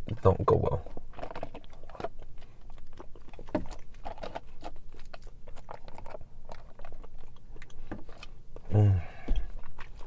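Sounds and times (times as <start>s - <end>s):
wet chewing clicks: 0.0s - 8.7s, 9.3s - 10.0s.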